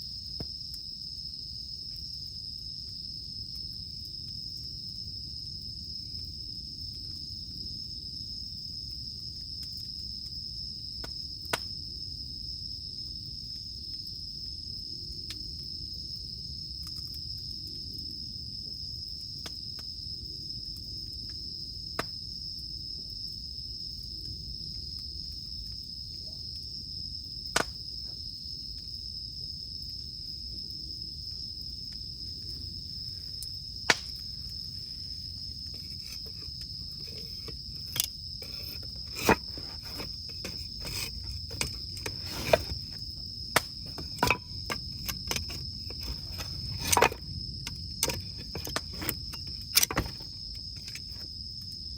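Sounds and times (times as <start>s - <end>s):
cicadas droning: 0.0s - 51.9s
campfire crackling and popping: 33.3s - 49.8s.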